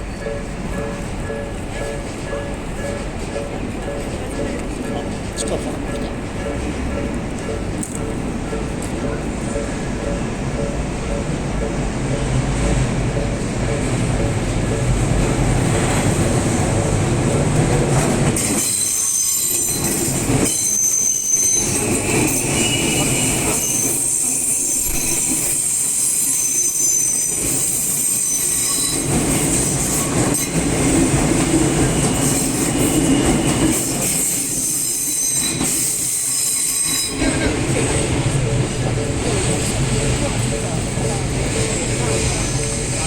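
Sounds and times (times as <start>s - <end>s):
electric train rumbling past: 0.0s - 43.0s
train wheels squealing: 18.4s - 43.0s.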